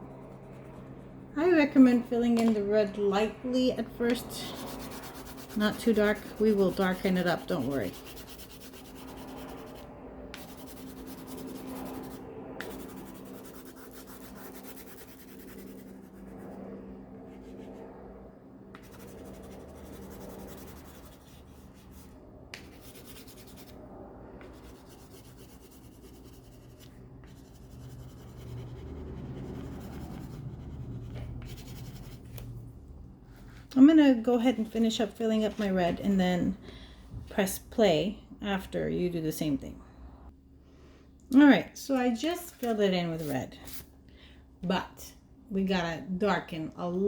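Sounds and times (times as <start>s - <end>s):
crayon rubbing on paper: 4.0s - 9.8s, 10.4s - 16.3s, 18.8s - 23.7s, 24.4s - 32.4s.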